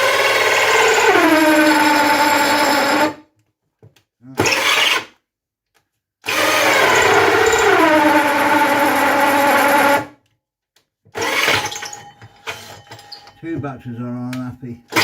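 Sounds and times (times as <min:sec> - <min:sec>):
cordless drill whining: 0:00.0 - 0:03.2, 0:04.4 - 0:05.1, 0:06.2 - 0:10.1, 0:11.1 - 0:13.3.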